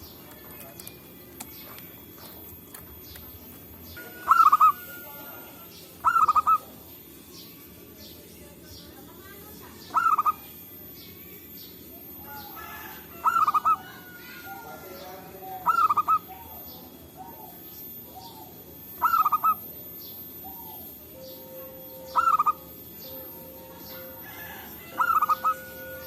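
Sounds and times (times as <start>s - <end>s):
faint bird chirps: 3.9s - 26.0s
dove cooing: 4.1s - 6.8s, 9.9s - 10.5s, 12.0s - 26.0s.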